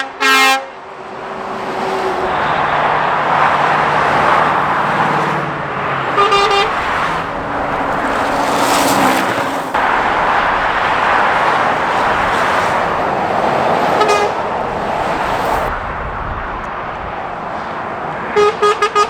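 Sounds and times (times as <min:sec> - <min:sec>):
vehicle horn toot: 0:00.0 - 0:00.7, 0:02.2 - 0:04.1, 0:06.0 - 0:07.2, 0:14.0 - 0:14.5, 0:17.6 - 0:19.0
traffic passing: 0:00.0 - 0:19.0.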